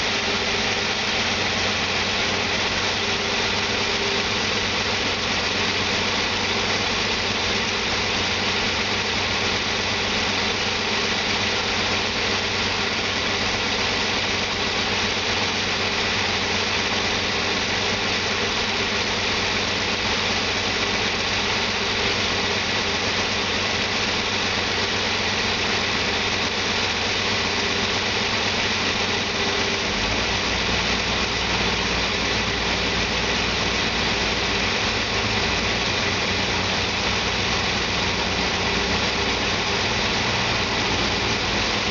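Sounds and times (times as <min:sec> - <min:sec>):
truck engine idling: 0:00.0 - 0:41.9.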